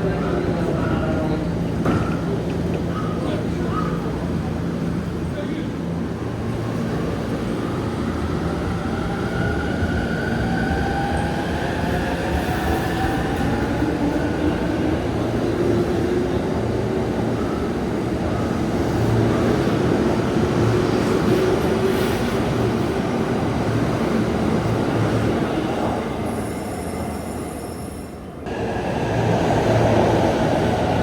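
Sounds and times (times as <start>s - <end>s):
electric train rumble: 28.3s - 31.0s.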